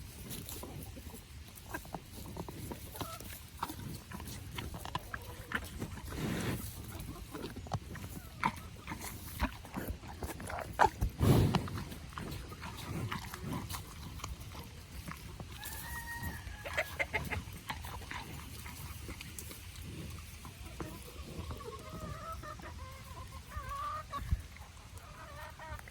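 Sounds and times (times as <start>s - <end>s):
animals crunching food: 0.0s - 25.9s
snuffling: 0.1s - 15.8s
low animal huff: 5.9s - 6.9s, 9.0s - 14.2s.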